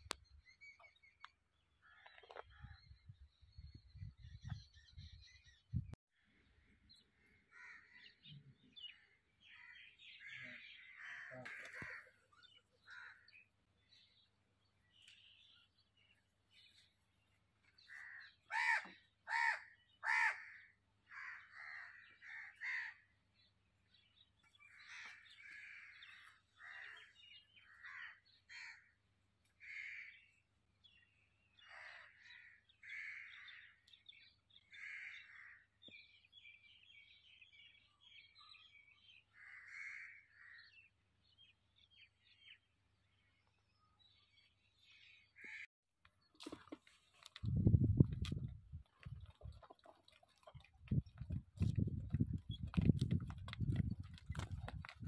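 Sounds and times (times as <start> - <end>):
birds calling: 6.4 - 55.0
loud harsh caws: 18.0 - 23.0, 29.6 - 30.2, 34.7 - 35.7, 39.3 - 40.7.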